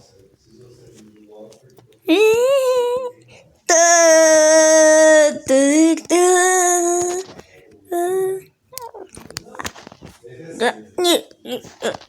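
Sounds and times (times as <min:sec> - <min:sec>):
person singing wordless notes: 0:02.1 - 0:03.1, 0:03.7 - 0:07.3, 0:07.9 - 0:08.5.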